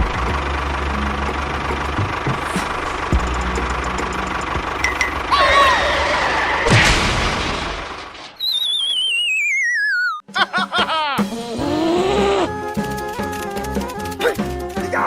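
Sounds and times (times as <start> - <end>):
engine knock: 0.0 - 6.4, 12.7 - 15.0
small tractor engine running: 0.0 - 6.7, 11.4 - 15.0
falling wavering whistle: 8.4 - 10.2.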